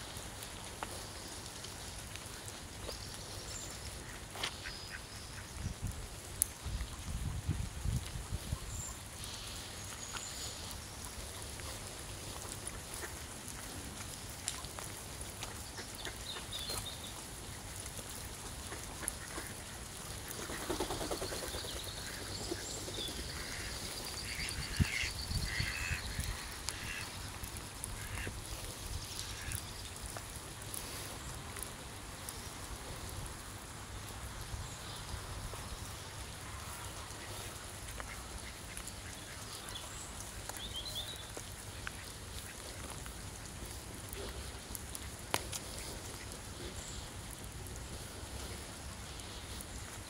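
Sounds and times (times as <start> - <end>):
drips and ticks: 0.0 - 50.0
rain patter: 0.0 - 50.0
ducks calling: 18.4 - 29.8.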